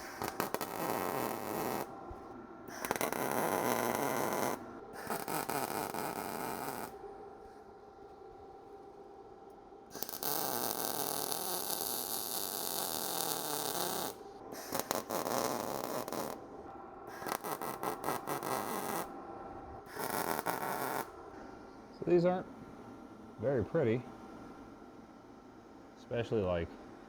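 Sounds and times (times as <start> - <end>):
welding arc crackling: 0.0 - 1.9, 2.7 - 7.0, 9.9 - 16.4, 17.1 - 19.1, 19.9 - 21.1.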